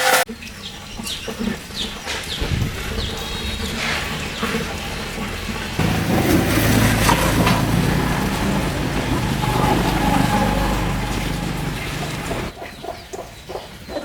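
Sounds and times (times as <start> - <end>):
knocks and clatter: 5.8 - 12.5
vehicle engine running: 5.8 - 12.6.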